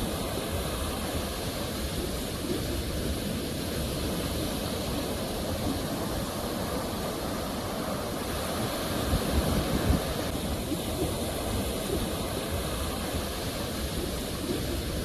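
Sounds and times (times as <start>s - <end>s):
ocean surf washing ashore: 0.0s - 15.0s.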